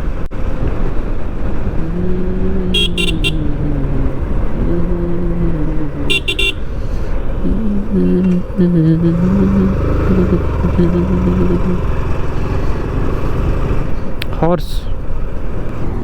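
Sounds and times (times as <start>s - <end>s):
motorcycle engine rumble: 0.0s - 16.0s
vehicle horn toots: 2.6s - 5.0s, 5.9s - 13.0s.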